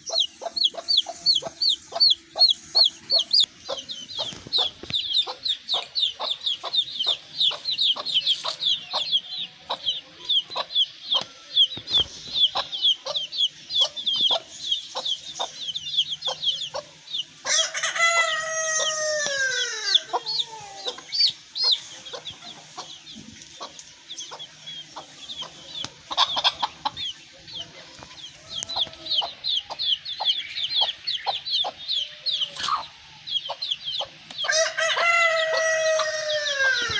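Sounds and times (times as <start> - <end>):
rapid high chirping: 0.0 - 17.5, 19.5 - 34.5
chickens clucking: 0.0 - 36.9
rooster crowing: 17.4 - 21.0, 34.5 - 36.9.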